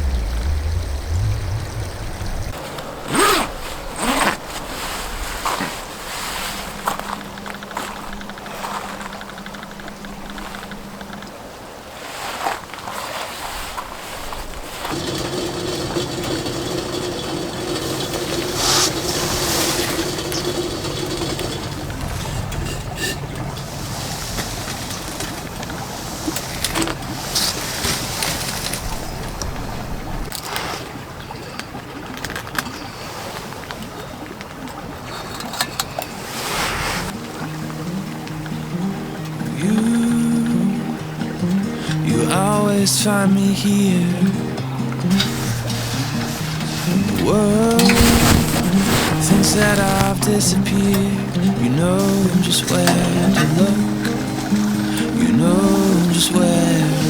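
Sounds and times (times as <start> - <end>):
steady hum: 0.0 - 2.6, 43.6 - 57.0
wind noise: 0.0 - 11.8, 18.1 - 30.4, 44.6 - 56.7
zipper pulled rasping: 3.1 - 5.7, 45.2 - 50.4
faint clicks: 6.8 - 11.5.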